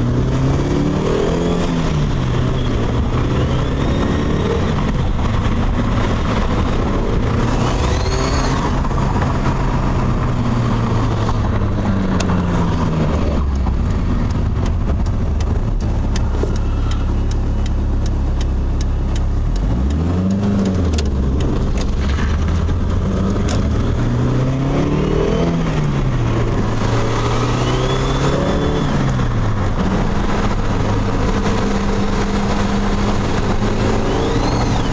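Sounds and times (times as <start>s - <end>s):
car engine revving: 0.0s - 34.9s
turbo whistle: 7.6s - 8.8s, 33.9s - 34.9s.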